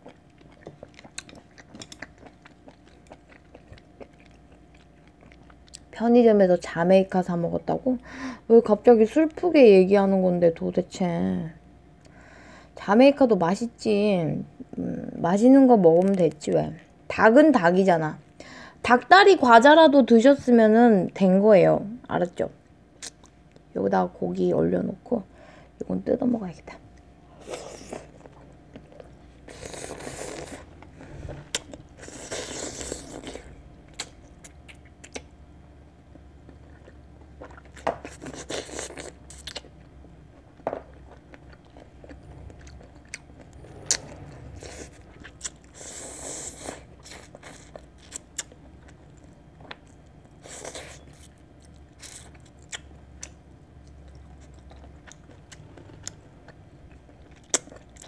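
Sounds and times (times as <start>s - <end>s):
person chewing food: 0.0s - 5.9s, 27.0s - 35.4s, 36.0s - 58.0s.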